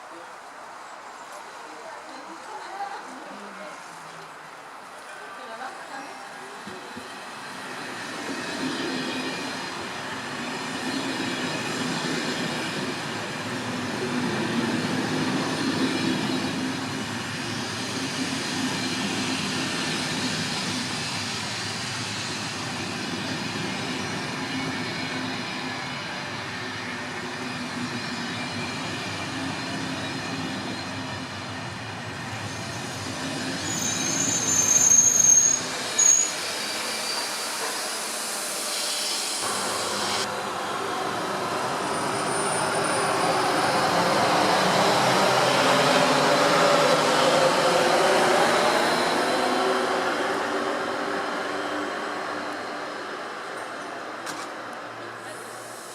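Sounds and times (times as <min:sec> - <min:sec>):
train wheels rumbling on rail: 0:06.6 - 0:55.9
high-pitched wheel squeal: 0:32.4 - 0:39.4.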